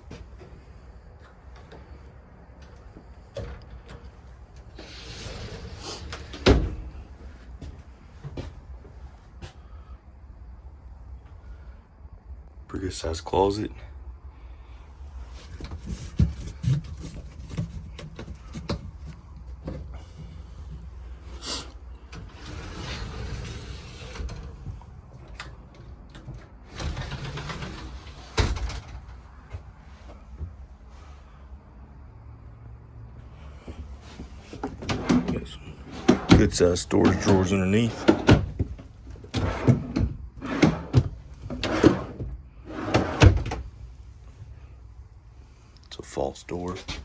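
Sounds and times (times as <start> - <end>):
closet doors sliding and scraping: 0.1 - 9.2, 15.1 - 31.4, 33.3 - 44.6.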